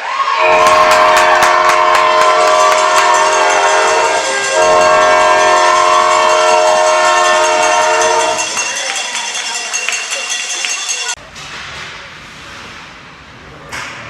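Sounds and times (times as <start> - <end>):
arena goal horn blasts: 0.3 - 8.7.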